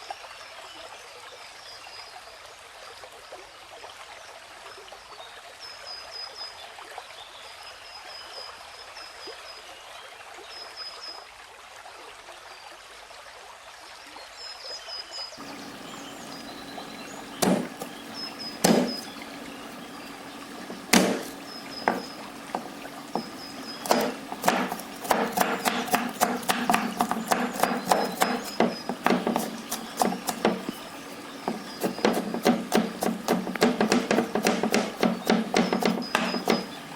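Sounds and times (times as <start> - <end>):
faint high chirping: 15.4 - 32.3, 35.0 - 36.9
running water: 15.4 - 36.9
knife chopping on cutting board: 17.3 - 19.2, 20.6 - 36.8.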